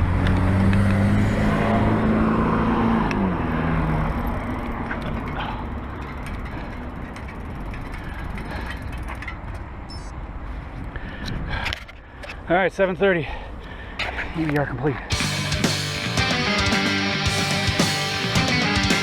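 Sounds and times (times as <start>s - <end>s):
motor vehicle passing: 0.0s - 8.8s
wind and road rush: 0.0s - 15.2s.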